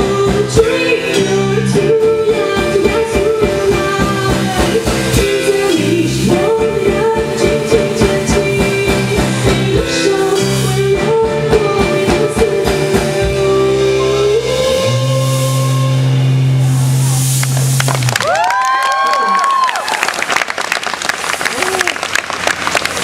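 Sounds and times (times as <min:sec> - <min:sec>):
drums: 0:00.0 - 0:23.0
live band playing: 0:00.0 - 0:23.0.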